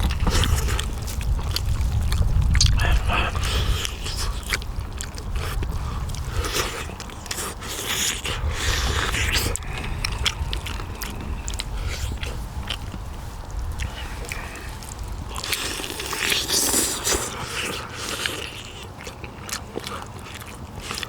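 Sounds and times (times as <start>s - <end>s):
low rumble: 0.0s - 6.4s, 8.4s - 15.4s
person chewing: 0.0s - 21.0s.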